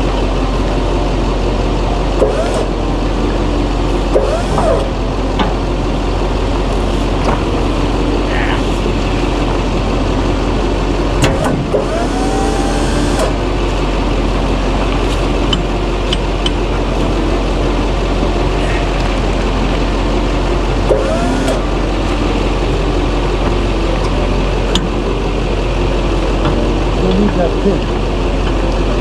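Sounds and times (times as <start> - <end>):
diesel engine idling: 0.0 - 29.0
whine gliding in pitch: 0.0 - 29.0.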